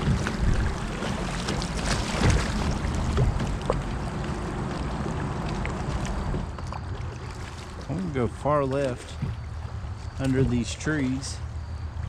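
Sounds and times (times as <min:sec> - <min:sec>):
sharp paddle splashes: 0:00.0 - 0:03.9
water splashing around kayak: 0:00.0 - 0:12.0.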